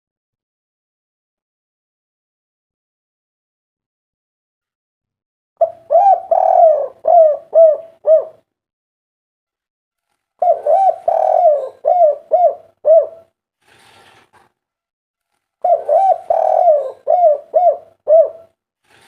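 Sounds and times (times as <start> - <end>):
dove cooing: 5.6 - 8.5, 10.4 - 13.3, 15.6 - 18.6.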